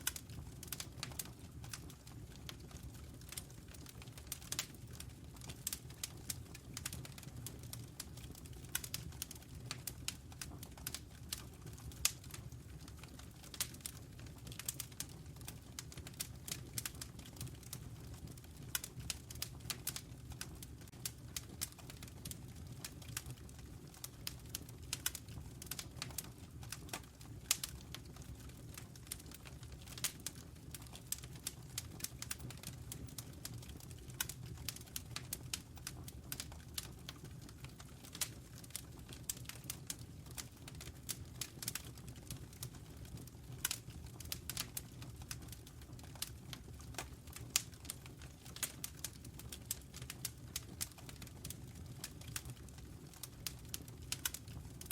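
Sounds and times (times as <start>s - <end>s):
fire crackling and popping: 0.0s - 54.9s
low rumble of flames: 0.0s - 54.9s.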